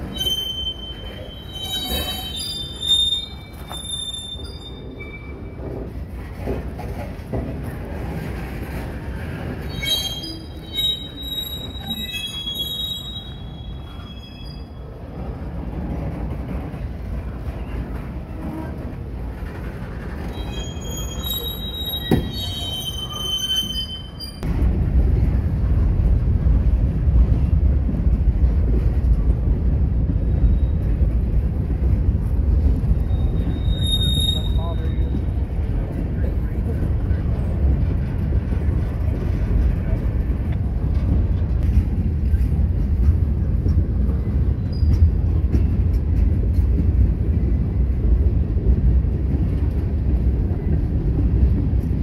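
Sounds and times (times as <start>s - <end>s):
wheels squealing: 0.0s - 5.6s, 9.6s - 14.8s, 20.2s - 24.4s, 33.0s - 35.1s.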